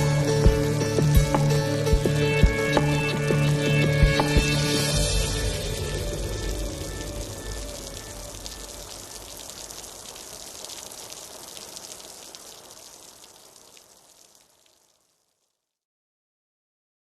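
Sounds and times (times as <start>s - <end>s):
music: 0.0s - 9.1s
rain falling: 0.0s - 15.7s.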